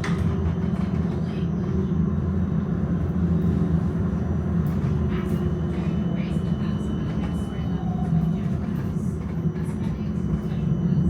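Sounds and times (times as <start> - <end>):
tram wheels rumbling on rails: 0.0 - 2.0.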